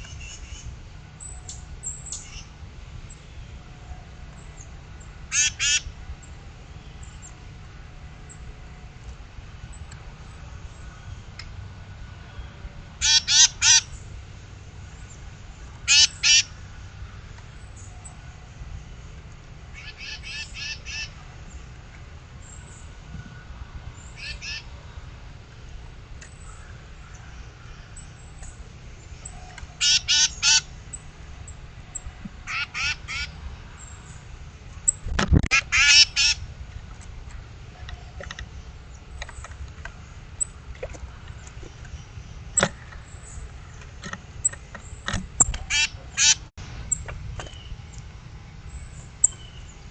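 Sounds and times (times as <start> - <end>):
bird harsh raspy calls: 0.0 - 2.6, 4.4 - 6.0, 13.0 - 14.0, 15.8 - 18.4, 19.7 - 21.6, 24.0 - 24.7, 29.2 - 34.2, 34.8 - 36.5, 41.3 - 47.8
bird giving harsh raspy calls: 5.3 - 5.9, 13.0 - 14.0, 15.9 - 16.6, 19.7 - 21.2, 24.2 - 24.7, 29.8 - 30.7, 32.5 - 33.4, 35.5 - 36.5, 45.4 - 46.5.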